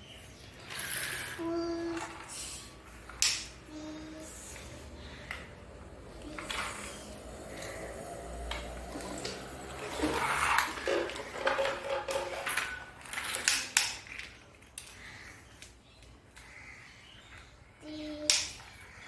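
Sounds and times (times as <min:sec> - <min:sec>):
hard objects clattering and knocking: 0:08.5 - 0:15.0.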